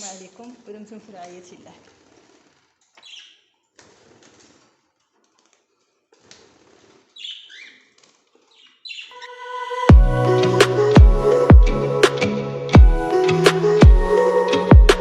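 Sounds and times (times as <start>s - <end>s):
rustling and wing flutter: 0.0s - 8.9s
birds chirping: 3.0s - 3.6s, 7.1s - 7.9s, 8.5s - 15.0s.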